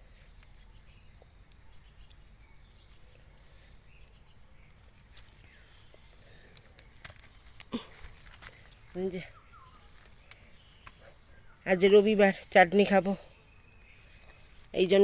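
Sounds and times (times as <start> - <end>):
insects chirring: 0.0 - 15.0
small clicks: 6.2 - 8.9.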